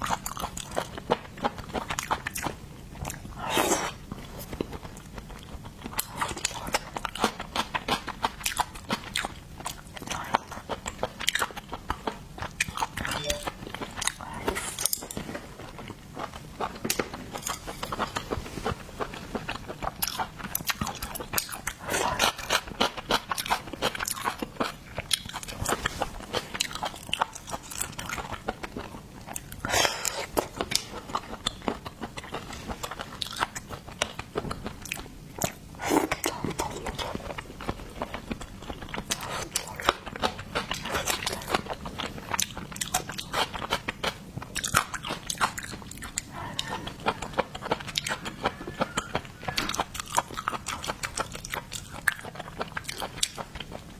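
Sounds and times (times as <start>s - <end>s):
chewing: 0.0s - 53.9s
crunching seafood shells: 26.4s - 53.9s.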